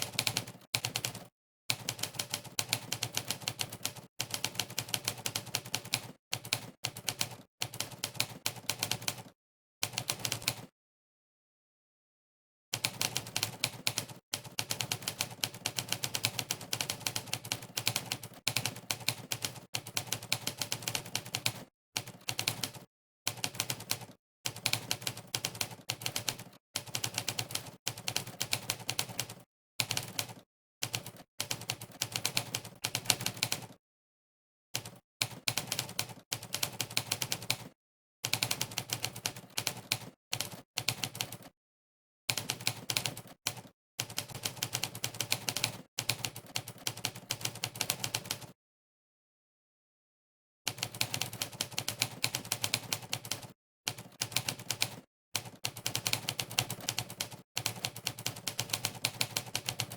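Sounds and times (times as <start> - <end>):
typewriter keystroke clacks: 34.8 - 41.5, 50.7 - 59.9.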